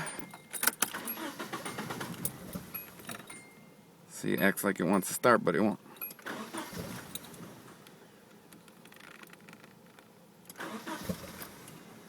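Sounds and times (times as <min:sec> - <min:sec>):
car engine cranking on starter: 0:00.0 - 0:03.4, 0:06.0 - 0:07.9, 0:10.4 - 0:12.0.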